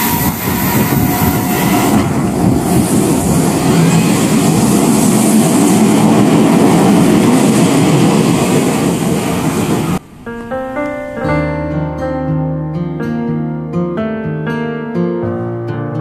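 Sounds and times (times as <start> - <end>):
electric train rushing past: 0.0 - 12.0.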